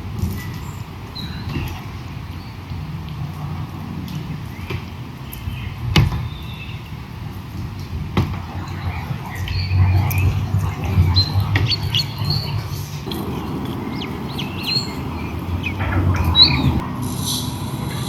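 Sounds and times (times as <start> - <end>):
birds chirping: 0.2 - 2.9, 3.8 - 18.0
steady low rumble: 8.0 - 18.0
brief hiss: 17.0 - 18.0.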